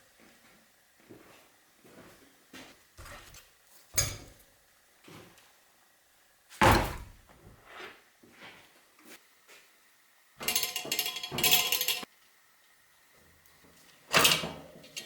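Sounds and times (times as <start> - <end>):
parts knocking and clunking: 3.0 - 3.4, 4.0 - 4.4, 6.6 - 7.6.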